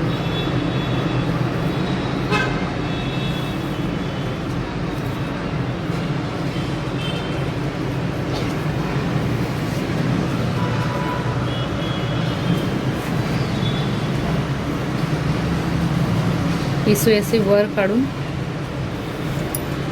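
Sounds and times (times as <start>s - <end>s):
road traffic rumble: 0.0s - 19.9s
faint car horn toots: 2.3s - 3.4s.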